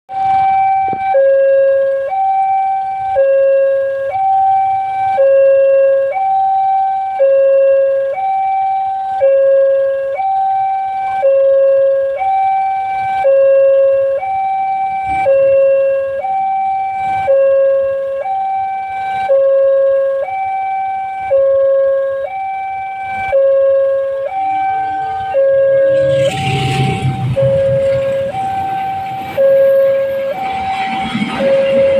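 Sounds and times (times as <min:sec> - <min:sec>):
level crossing two-tone alarm: 0:00.1 - 0:31.9
approaching train rumble: 0:24.5 - 0:31.9.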